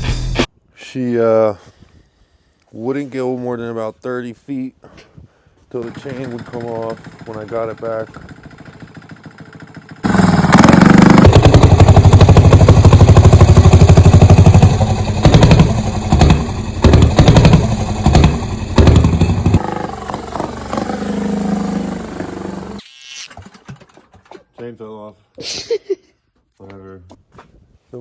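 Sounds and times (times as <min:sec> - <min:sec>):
small diesel engine running: 0:05.8 - 0:23.8.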